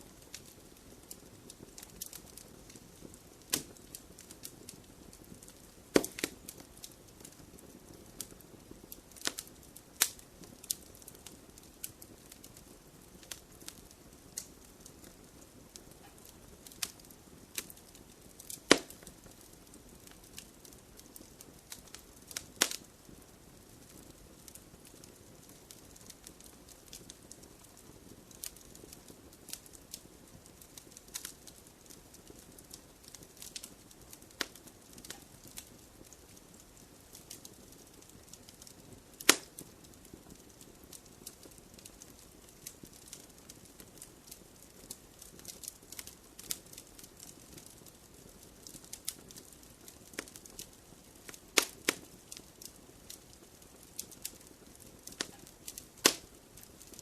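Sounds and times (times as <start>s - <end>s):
fire hissing: 0.0s - 57.0s
wood fire crackling: 0.0s - 57.0s.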